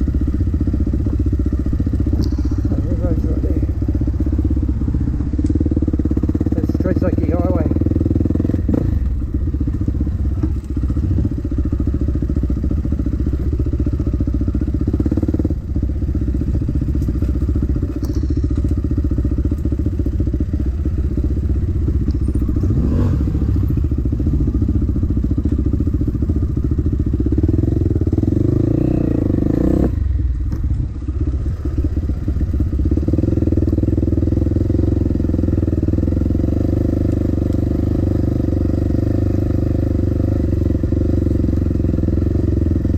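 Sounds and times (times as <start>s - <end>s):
dirt bike engine revving: 20.5s - 25.0s, 27.4s - 30.0s.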